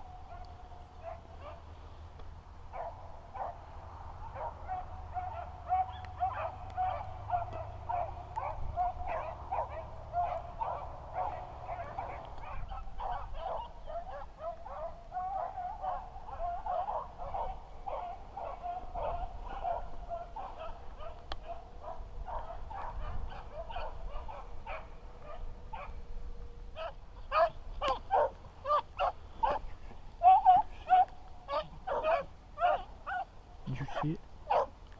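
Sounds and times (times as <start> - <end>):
dogs baying: 4.2 - 26.0, 26.7 - 34.8
sharp dog barks: 4.4 - 21.2, 30.2 - 34.8.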